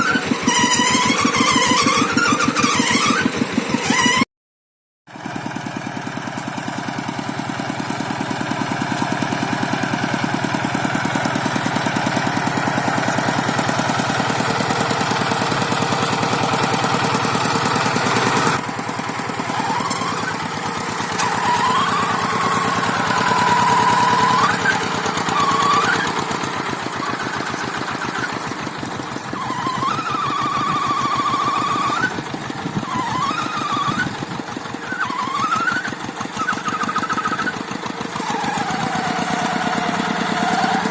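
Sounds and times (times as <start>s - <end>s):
high wavering squeal: 0.0s - 4.2s, 19.5s - 20.4s, 21.1s - 26.2s, 29.3s - 32.2s, 32.9s - 34.2s
tractor engine running: 0.0s - 4.2s, 5.1s - 40.9s.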